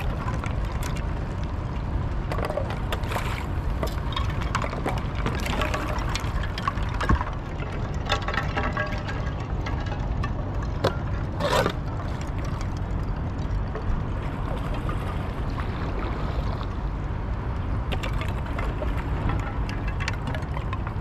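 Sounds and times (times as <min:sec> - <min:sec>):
wind rumble on microphone: 0:00.0 - 0:21.0
paddle splashing water: 0:02.3 - 0:09.4, 0:14.2 - 0:16.8.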